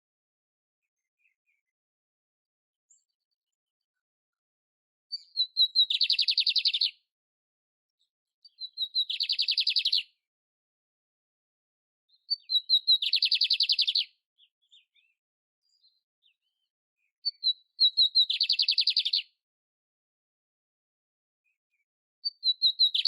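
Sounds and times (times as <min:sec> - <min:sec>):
canary singing trills: 0:05.1 - 0:07.0, 0:08.4 - 0:10.2, 0:12.1 - 0:19.4, 0:22.2 - 0:23.0.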